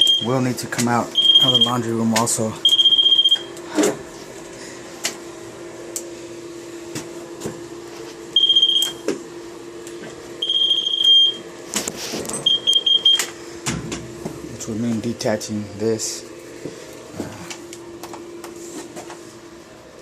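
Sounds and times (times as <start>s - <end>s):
moisture meter beeping: 0.0s - 0.4s, 1.1s - 2.0s, 2.6s - 3.6s, 8.4s - 9.1s, 10.4s - 11.5s, 12.4s - 13.3s
steady low hum: 0.0s - 20.0s.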